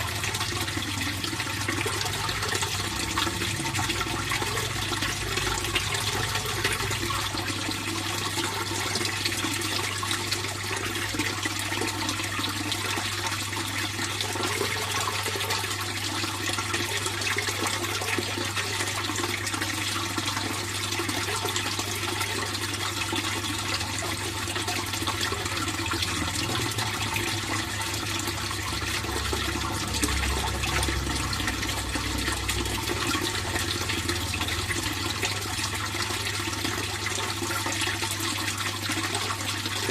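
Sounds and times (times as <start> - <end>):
pond water flowing: 0.0 - 39.9
low steady hum: 25.0 - 38.4.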